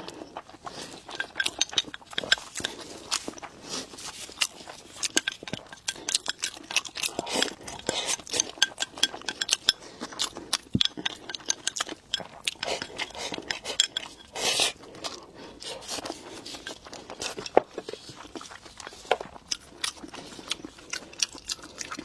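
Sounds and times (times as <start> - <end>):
chewing and biting: 0.0 - 22.0
utensils clinking on dishes: 0.8 - 3.4, 4.1 - 14.8, 15.7 - 18.2.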